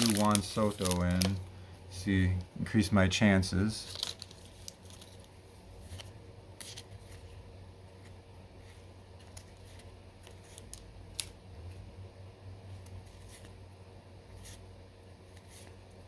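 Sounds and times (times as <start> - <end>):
trading cards flicking and sliding: 0.0 - 1.4, 9.2 - 11.5.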